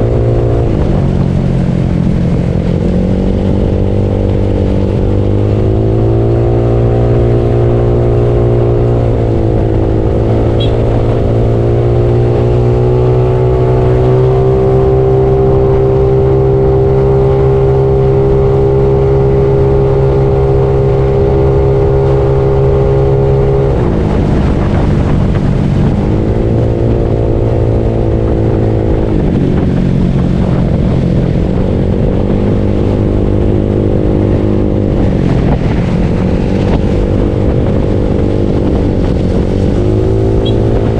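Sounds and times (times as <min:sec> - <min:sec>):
scooter engine running: 0:09.4 - 0:12.2.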